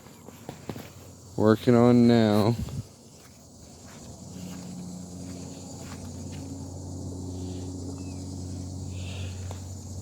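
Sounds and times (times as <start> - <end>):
crickets chirping: 0.0 - 10.0
low mechanical hum: 2.2 - 10.0.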